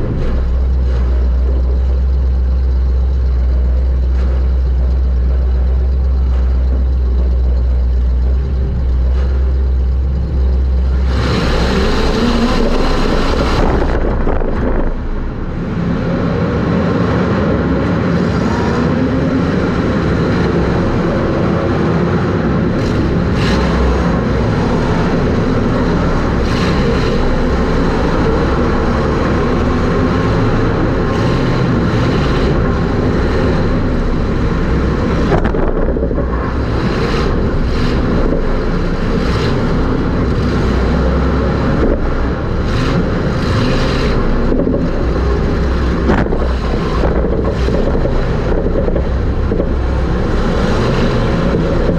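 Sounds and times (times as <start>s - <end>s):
race car engine from inside: 0.0s - 51.9s.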